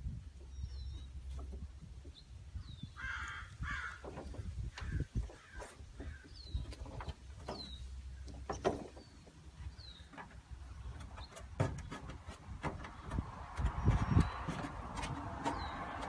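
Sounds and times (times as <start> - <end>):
small bird chirping: 0.4 - 3.4
scattered knocks and taps: 10.1 - 16.0.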